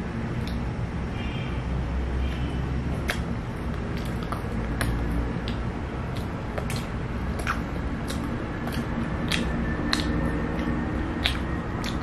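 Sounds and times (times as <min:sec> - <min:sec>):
low background hum: 0:00.0 - 0:12.0
chewing with wet mouth clicks: 0:00.4 - 0:00.6, 0:02.9 - 0:12.0.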